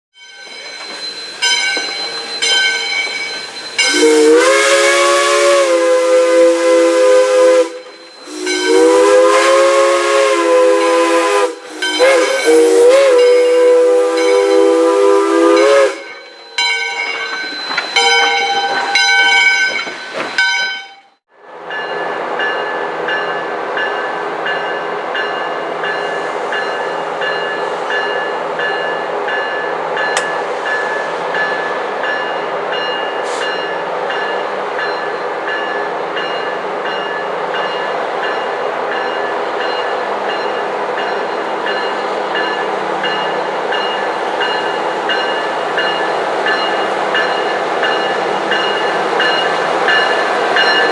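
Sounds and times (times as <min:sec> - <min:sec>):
steam locomotive chime whistle: 0:00.2 - 0:50.9
train running: 0:00.2 - 0:50.9
steam hissing: 0:00.4 - 0:16.1.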